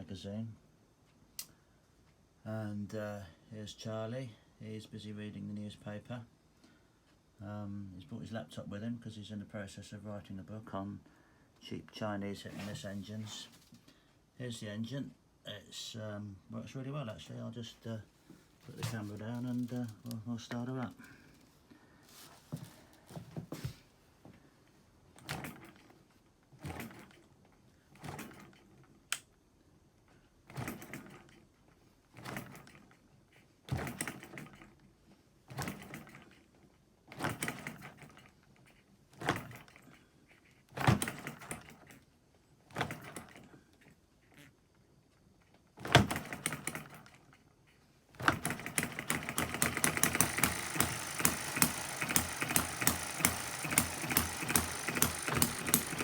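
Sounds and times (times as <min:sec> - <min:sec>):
model engine clatter: 0:48.2 - 0:56.0.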